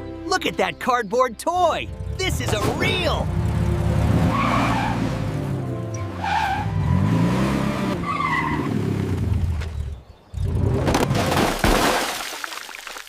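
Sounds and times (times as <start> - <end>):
background music: 0.0 - 8.0
car engine revving: 1.9 - 11.1.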